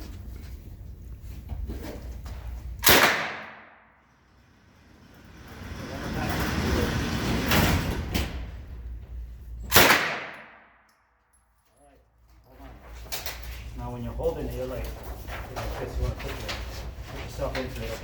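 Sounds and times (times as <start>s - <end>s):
low rumbling background noise: 0.0s - 18.0s
gunshot crack: 2.8s - 3.7s, 9.7s - 10.7s.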